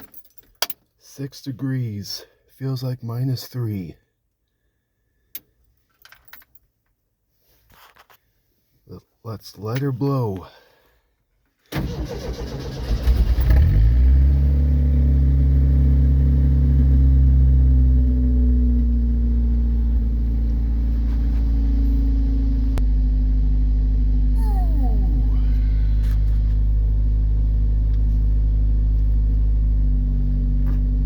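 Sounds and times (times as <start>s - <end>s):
engine idling: 22.7s - 30.0s.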